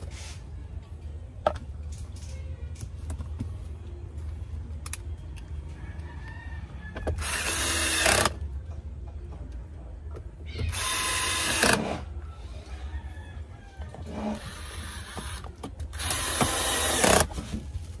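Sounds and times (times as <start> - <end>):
power drill driving screws: 7.2 - 8.4, 10.7 - 12.0, 14.1 - 17.3.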